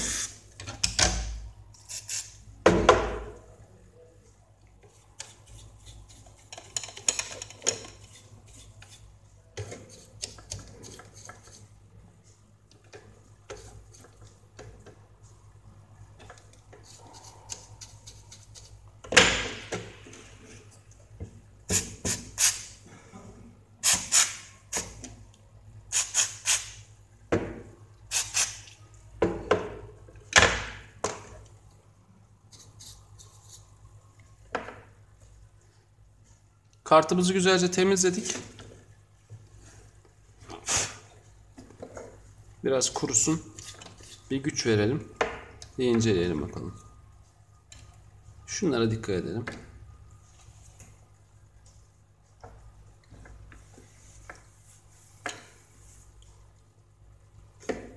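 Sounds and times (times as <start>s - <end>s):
short sharp noise bursts: 23.8s - 24.8s.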